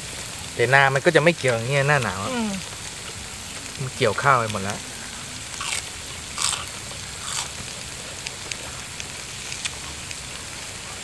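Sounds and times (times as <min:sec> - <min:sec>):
faint sizzle of a pan: 0:00.0 - 0:11.0
crunchy chewing of food: 0:02.6 - 0:11.0.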